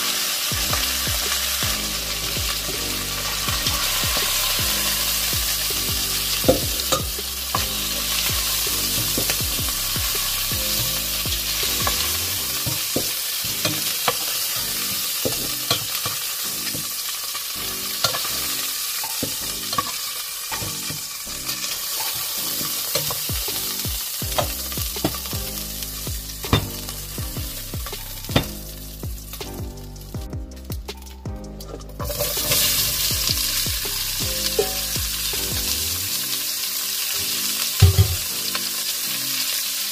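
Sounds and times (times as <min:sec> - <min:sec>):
chicken sizzling in oil: 0:00.0 - 0:30.2, 0:32.0 - 0:39.9.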